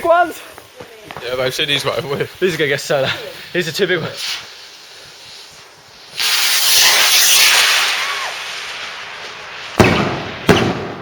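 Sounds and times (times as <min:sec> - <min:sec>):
firework rocket hissing: 0:00.2 - 0:11.0
firework bang: 0:06.1 - 0:11.0.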